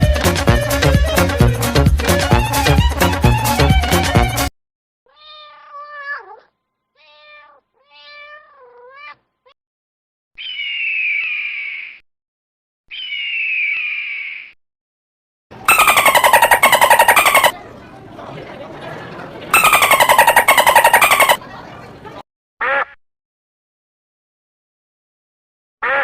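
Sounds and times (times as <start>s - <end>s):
cat meowing: 5.1s - 9.2s.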